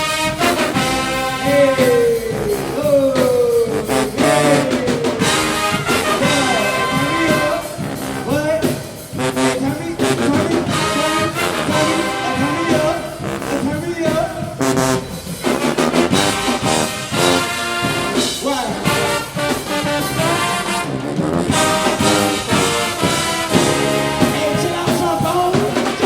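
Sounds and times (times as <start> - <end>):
brass with trombones: 0.0 - 26.0
marching band drums: 0.0 - 26.0.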